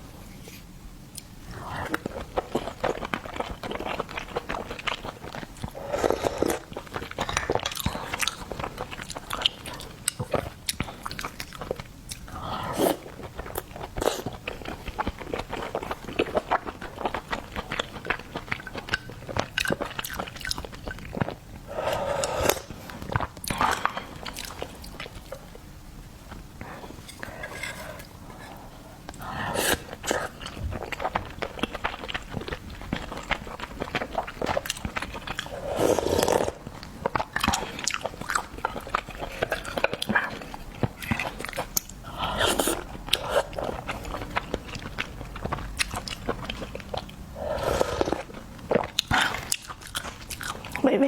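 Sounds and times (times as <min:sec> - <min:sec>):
person chewing food: 0:01.2 - 0:50.9
wet mouth sounds: 0:29.1 - 0:50.8.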